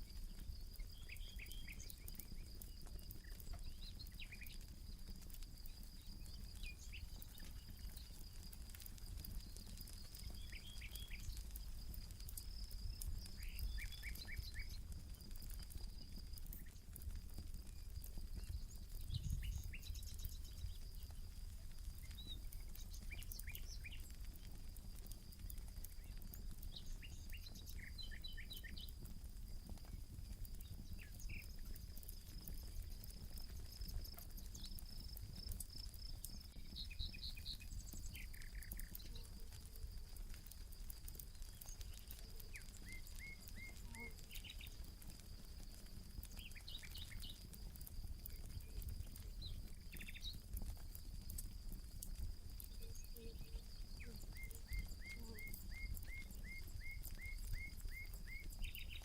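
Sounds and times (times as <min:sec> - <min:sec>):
campfire crackling and popping: 0:00.0 - 0:59.0
birds chirping: 0:00.2 - 0:29.1, 0:29.7 - 0:44.9.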